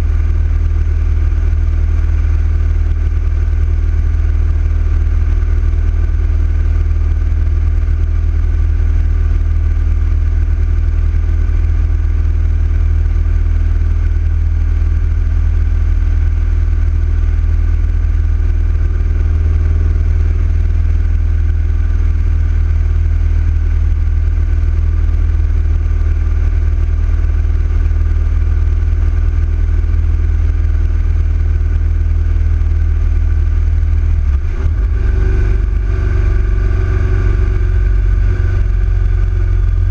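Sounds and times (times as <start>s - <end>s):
motorcycle engine cruising: 34.0s - 39.9s.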